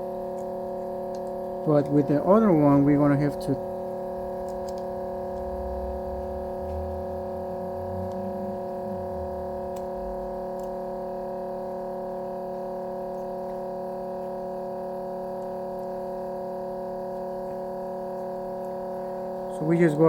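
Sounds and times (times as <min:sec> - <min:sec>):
steady hum of held tones: 0:00.0 - 0:20.0.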